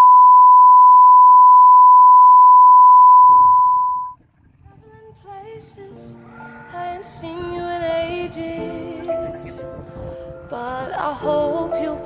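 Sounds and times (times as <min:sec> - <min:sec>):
steady electronic beep: 0:00.0 - 0:04.2
soft music: 0:04.7 - 0:12.0.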